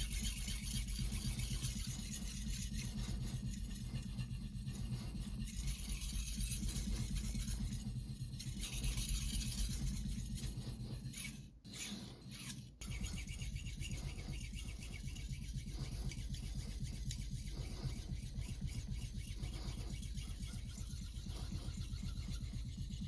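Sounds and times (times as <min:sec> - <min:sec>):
knife scraping on whetstone: 0:08.7 - 0:15.6.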